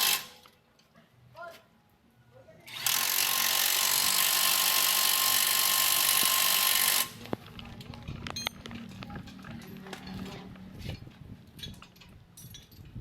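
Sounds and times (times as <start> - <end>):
power tool whirring: 0.0 - 0.3, 2.7 - 7.2.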